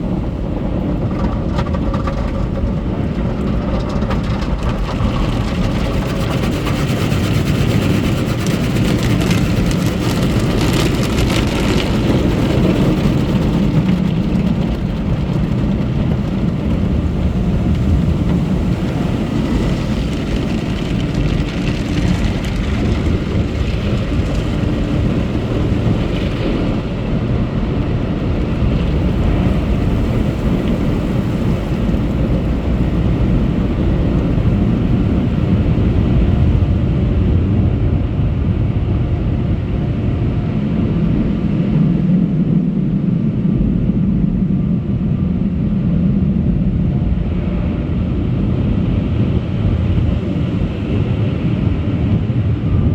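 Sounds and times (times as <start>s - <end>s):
car wash machine rumble: 0.0s - 52.9s
water spraying and drumming: 0.3s - 36.7s.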